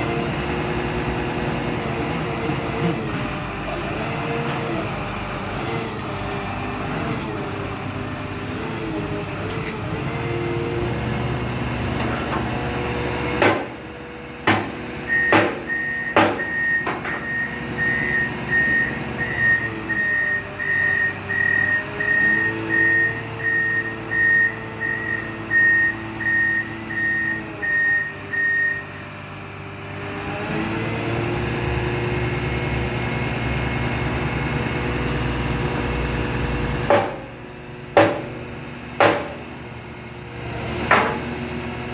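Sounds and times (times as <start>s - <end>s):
diesel engine running: 0.0s - 41.9s
reversing alarm beeping: 15.0s - 29.1s.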